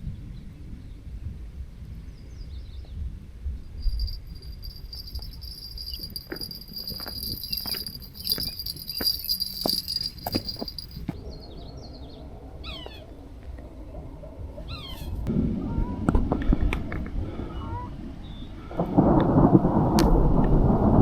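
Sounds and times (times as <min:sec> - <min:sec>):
insects trilling: 0:03.8 - 0:11.0.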